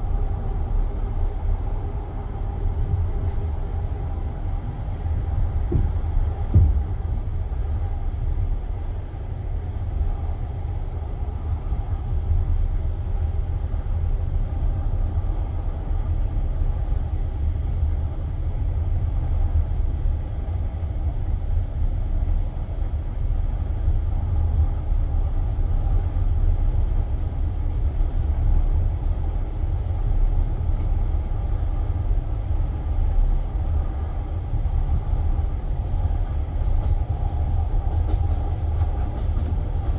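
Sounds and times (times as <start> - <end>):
train carriage rumbling: 0.0 - 39.9
thump: 5.7 - 6.8.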